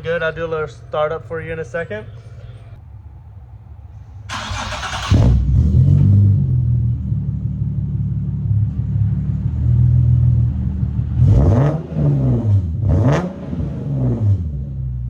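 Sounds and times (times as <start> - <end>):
car engine idling and revving: 4.3 - 15.0.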